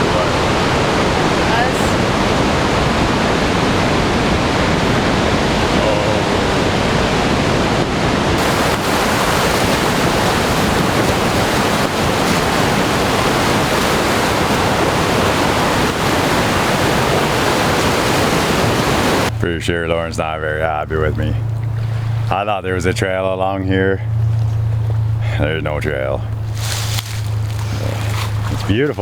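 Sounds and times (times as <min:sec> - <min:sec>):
heavy rain falling: 0:08.4 - 0:19.3.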